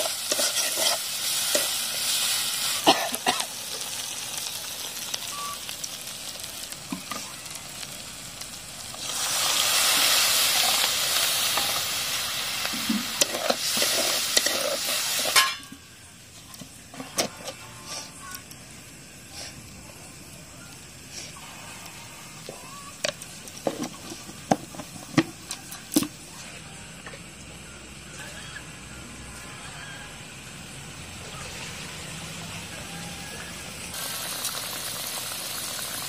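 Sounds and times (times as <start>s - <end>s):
metal spatula scraping a pan: 0.0s - 1.8s, 13.2s - 15.7s
masala sizzling in a pan: 0.0s - 36.0s
water poured into hot pan: 33.9s - 36.0s.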